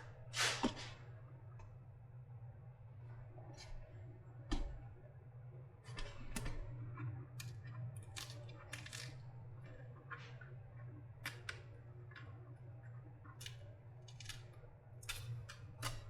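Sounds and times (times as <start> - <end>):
clicks knocks and scrapes: 0.4 - 1.0.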